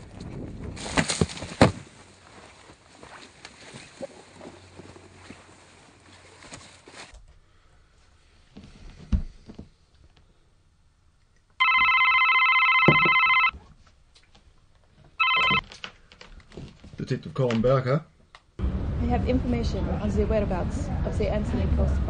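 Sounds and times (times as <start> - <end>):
telephone ringing: 11.6 - 13.6, 15.2 - 15.6.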